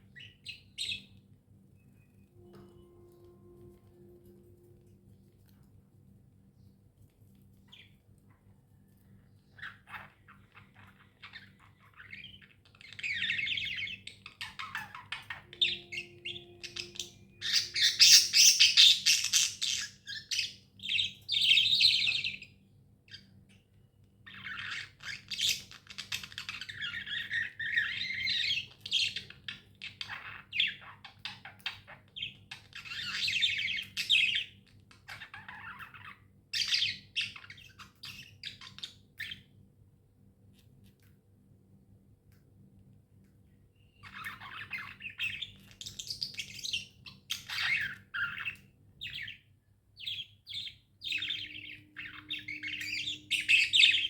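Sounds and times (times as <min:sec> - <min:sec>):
budgerigars chirping and chattering: 0:09.5 - 0:22.5, 0:24.3 - 0:39.5, 0:44.0 - 0:49.4, 0:50.0 - 0:54.0.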